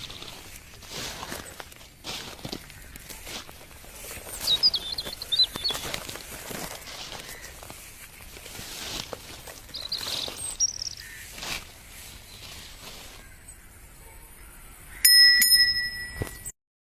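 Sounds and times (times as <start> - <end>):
birds chirping: 0.0 - 16.5
faint outdoor ambience: 0.0 - 16.5
loud bell ringing: 15.0 - 16.5.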